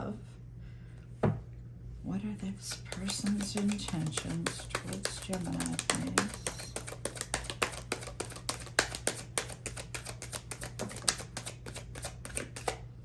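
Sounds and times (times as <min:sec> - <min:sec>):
steady low hum: 0:00.0 - 0:13.0
cards being shuffled: 0:02.7 - 0:12.8.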